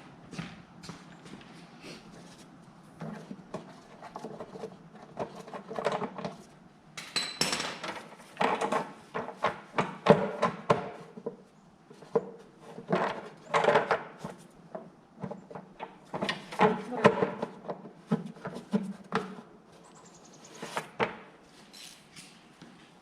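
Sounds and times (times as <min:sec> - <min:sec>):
metal tools clinking and knocking: 0:07.0 - 0:08.8.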